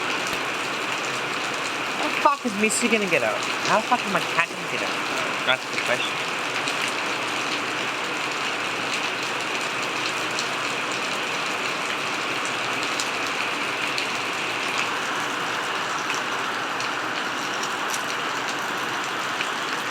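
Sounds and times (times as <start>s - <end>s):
raindrops ticking close by: 0.0s - 19.9s
steady rain: 0.0s - 19.9s.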